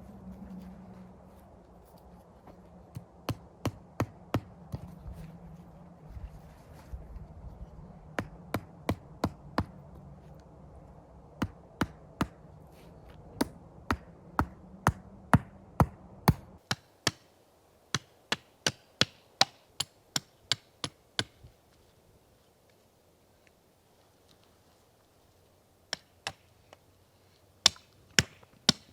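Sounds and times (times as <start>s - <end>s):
low hum: 0.0s - 16.6s.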